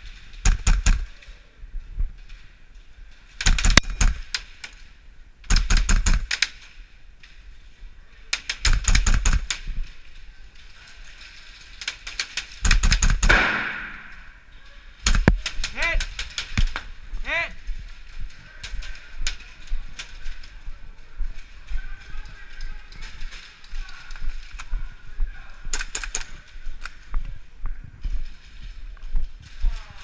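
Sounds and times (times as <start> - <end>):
airsoft gun firing bursts: 0.4 - 1.1, 5.5 - 6.4, 8.5 - 9.6, 12.6 - 14.2.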